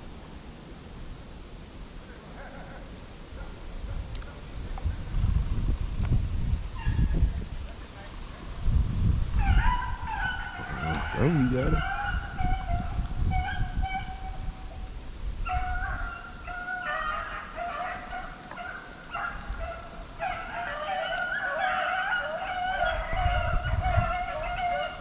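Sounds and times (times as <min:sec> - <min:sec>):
hounds baying: 0:02.1 - 0:04.0, 0:09.4 - 0:14.4, 0:15.4 - 0:25.0.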